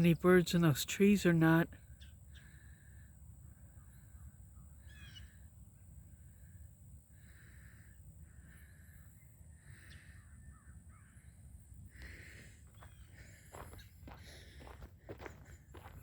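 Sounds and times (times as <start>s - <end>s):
distant crows cawing: 2.0s - 5.4s, 7.1s - 15.9s
footsteps on gravel: 12.0s - 16.0s.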